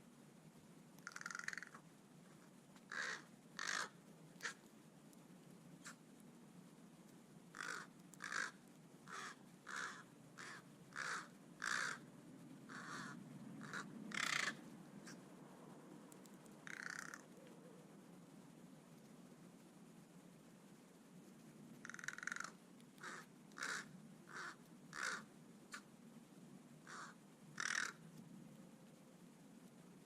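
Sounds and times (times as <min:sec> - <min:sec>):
crow cawing: 0:01.0 - 0:01.8, 0:02.9 - 0:04.6, 0:07.5 - 0:12.0, 0:12.7 - 0:14.6, 0:16.6 - 0:17.2, 0:21.8 - 0:25.8, 0:26.8 - 0:28.0.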